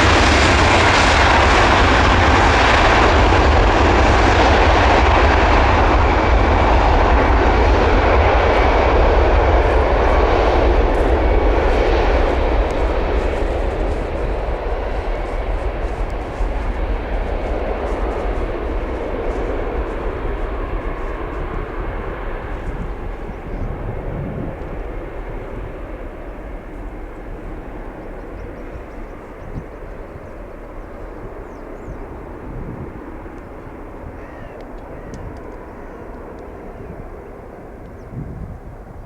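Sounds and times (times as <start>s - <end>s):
jet engine rumble: 0.0s - 39.0s.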